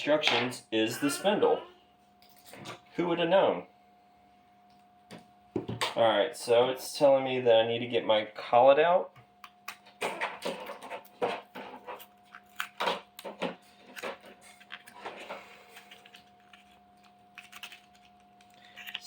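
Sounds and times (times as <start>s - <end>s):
packaging rustling: 10.1s - 19.0s
small parts clicking and tapping: 15.8s - 19.0s.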